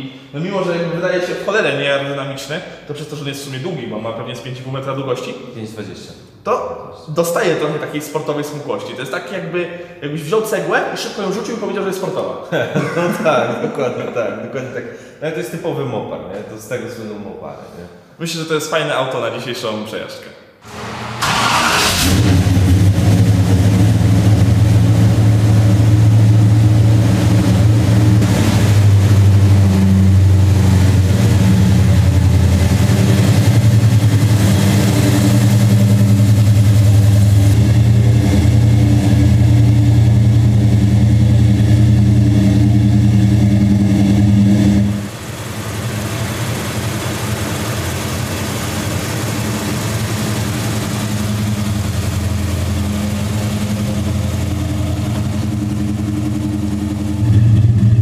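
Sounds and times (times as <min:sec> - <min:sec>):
car engine idling: 0:20.6 - 0:58.0.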